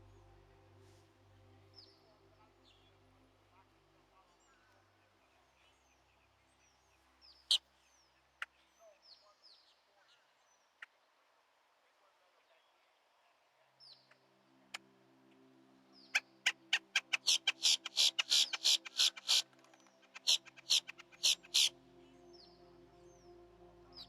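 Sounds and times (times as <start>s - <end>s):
soft background music: 0.0s - 8.4s, 13.0s - 24.0s
falling chip calls: 16.5s - 19.5s
bird calling harsh notes: 16.5s - 21.7s.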